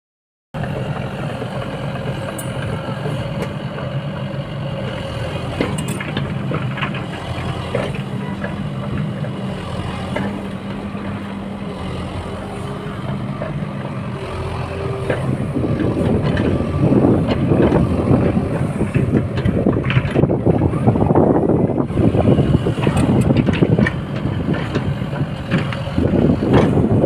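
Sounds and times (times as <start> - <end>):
excavator diesel engine running: 0.6 - 27.0
knocks and clanks: 5.4 - 9.4, 13.0 - 20.6, 22.7 - 27.0.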